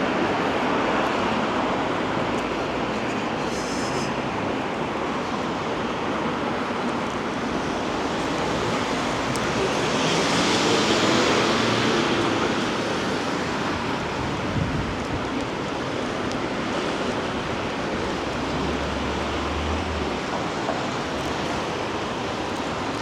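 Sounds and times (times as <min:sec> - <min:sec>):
wet street noise: 0:00.0 - 0:23.0
rain hissing: 0:02.4 - 0:04.3, 0:07.0 - 0:23.0.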